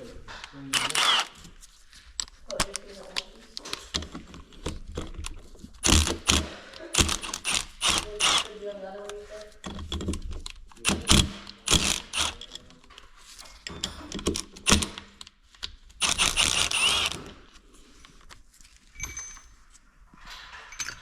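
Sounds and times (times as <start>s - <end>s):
metal tools clinking and rattling: 13.4s - 14.5s, 18.8s - 21.0s
metal parts clattering: 18.9s - 19.7s, 20.3s - 21.0s.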